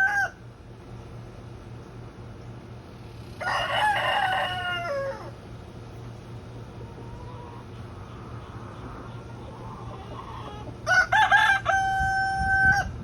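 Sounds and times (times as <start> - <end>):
rooster crowing: 0.0 - 0.5, 3.4 - 5.4, 9.7 - 13.0.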